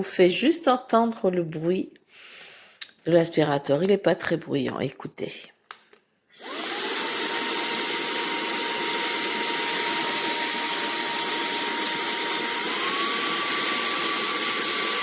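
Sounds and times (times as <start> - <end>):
handheld vacuum cleaner running: 6.4 - 15.0.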